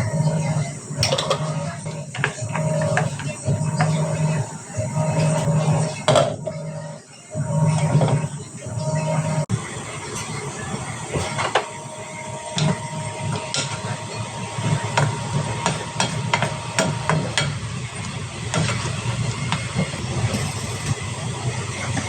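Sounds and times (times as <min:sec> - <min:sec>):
utensils knocking and tapping: 0:14.6 - 0:21.0.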